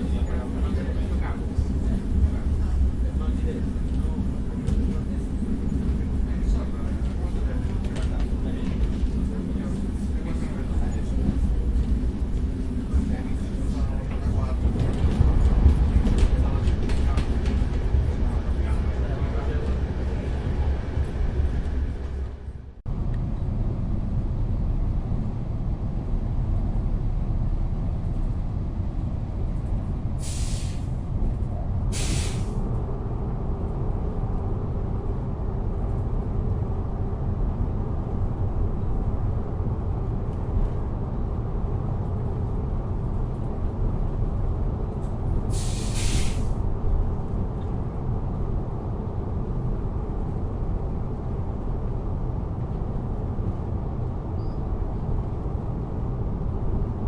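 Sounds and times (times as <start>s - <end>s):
train rumble: 0.0s - 57.0s
short hisses of air: 30.2s - 30.9s, 31.9s - 32.6s, 45.5s - 46.6s.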